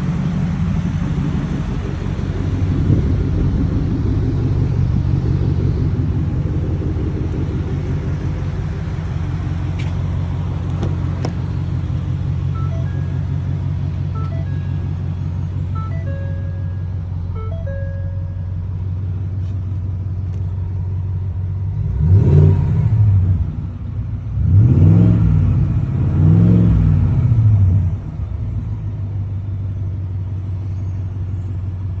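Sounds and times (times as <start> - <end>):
truck engine idling: 0.0 - 21.8
engine revving: 21.6 - 23.7, 24.3 - 28.0.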